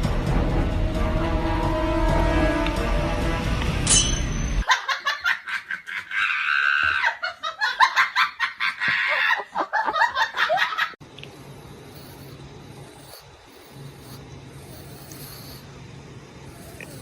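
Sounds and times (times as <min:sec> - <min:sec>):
person laughing hard: 0:04.7 - 0:11.0.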